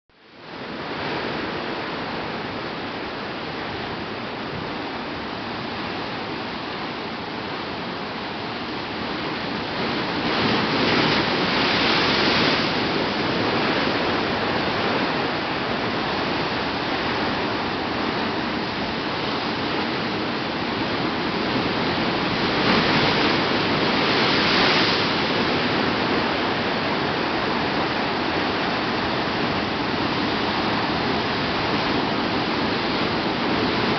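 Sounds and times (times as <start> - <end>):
ocean waves washing: 0.3 - 33.9.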